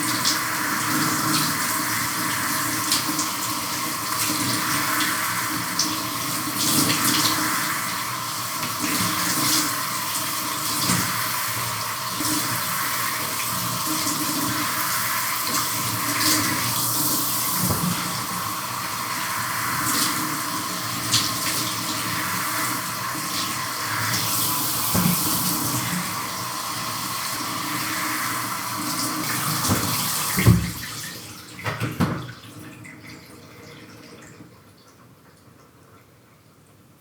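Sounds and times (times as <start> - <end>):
shower water running: 0.0 - 35.0
knocks: 17.6 - 18.1, 29.6 - 30.9.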